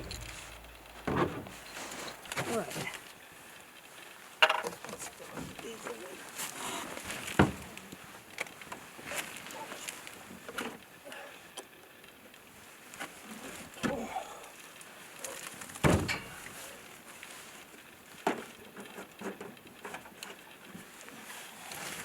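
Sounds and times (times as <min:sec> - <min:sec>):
light knocks and clicks: 0:00.0 - 0:02.5
heavy thump: 0:00.0 - 0:02.6.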